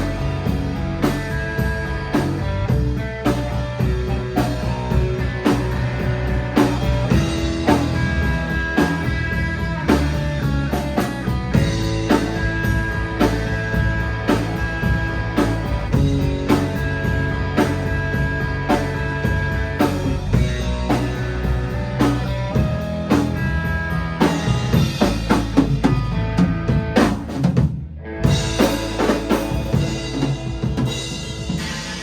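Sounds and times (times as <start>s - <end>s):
drum kit beat: 0.0s - 32.0s
rock band playing live: 0.0s - 32.0s.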